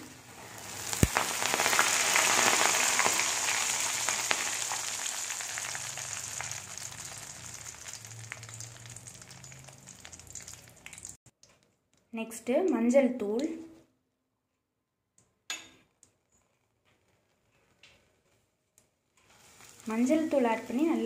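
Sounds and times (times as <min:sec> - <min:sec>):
leaves sizzling in hot oil: 0:00.0 - 0:11.2, 0:19.2 - 0:21.0.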